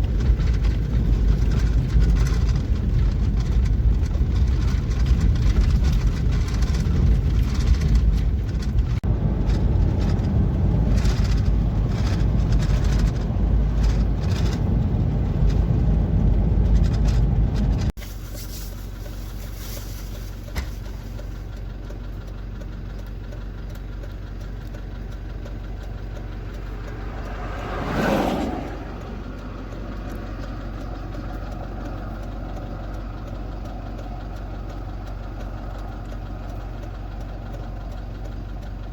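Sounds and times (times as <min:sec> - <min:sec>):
engine hum: 0:00.0 - 0:38.9
vehicle engine rumbling: 0:00.0 - 0:38.9
vehicle passing by: 0:26.3 - 0:31.0.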